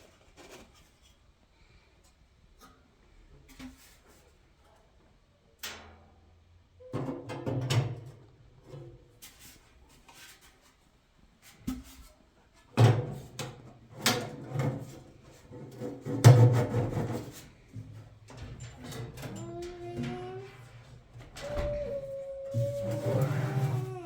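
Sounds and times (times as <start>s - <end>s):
objects clunking and scraping: 11.6s - 24.0s.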